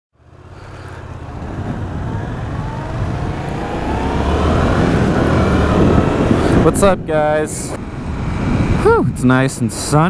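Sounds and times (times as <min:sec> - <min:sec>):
motorcycle engine accelerating: 0:00.2 - 0:09.0.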